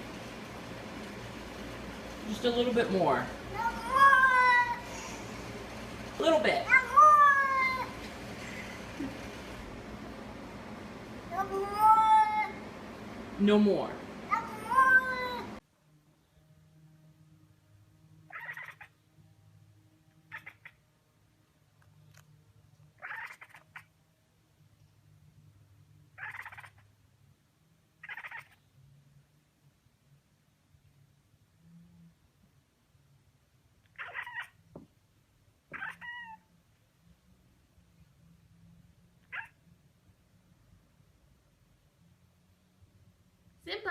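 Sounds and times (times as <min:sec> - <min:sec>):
cat crying raspily: 0:03.5 - 0:04.9, 0:06.7 - 0:08.6, 0:11.3 - 0:12.6, 0:14.3 - 0:15.6, 0:18.3 - 0:19.0, 0:20.2 - 0:20.8, 0:23.0 - 0:23.9, 0:26.2 - 0:26.9, 0:28.0 - 0:28.6, 0:33.9 - 0:34.6, 0:35.7 - 0:36.5, 0:39.2 - 0:39.6.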